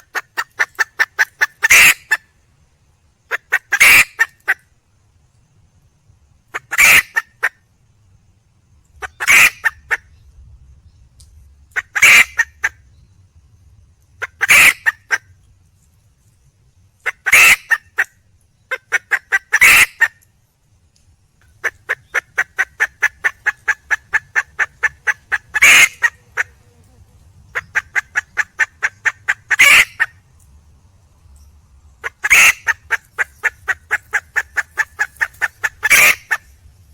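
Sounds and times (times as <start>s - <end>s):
hen calling: 0.0s - 2.2s, 3.3s - 4.6s, 6.5s - 7.5s, 9.0s - 10.1s, 11.8s - 12.7s, 14.2s - 15.3s, 17.0s - 18.1s, 18.7s - 20.2s, 21.6s - 30.2s, 32.0s - 36.5s
rapid hen clucks: 0.0s - 2.2s, 3.3s - 4.6s, 6.5s - 7.6s, 9.0s - 10.1s, 11.7s - 12.8s, 14.2s - 15.3s, 17.0s - 18.1s, 18.7s - 20.2s, 21.4s - 30.2s, 32.0s - 36.5s.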